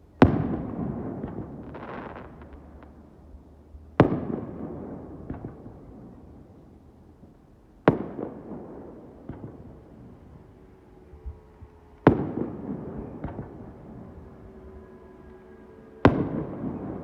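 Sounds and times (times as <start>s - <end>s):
fireworks bangs with echoing rumble: 0.1s - 17.0s
faint fireworks pops: 0.2s - 3.2s, 4.0s - 10.4s, 12.0s - 14.1s.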